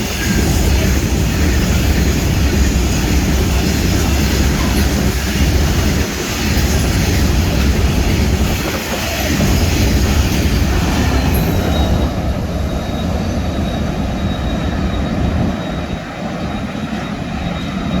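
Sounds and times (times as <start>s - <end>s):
high hiss of train: 0.0s - 18.0s
train carriages rumbling: 0.0s - 18.0s.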